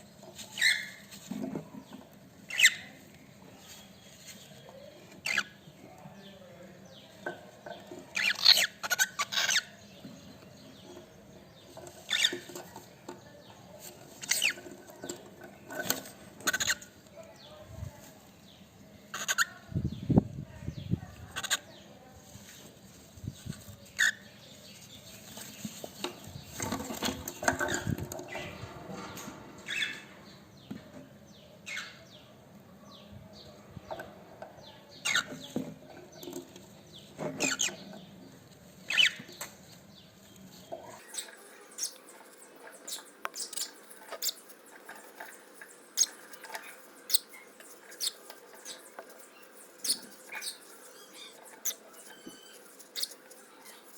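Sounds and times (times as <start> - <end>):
bird scratching and rustling: 13.7 - 17.0, 24.7 - 28.3, 40.4 - 53.9.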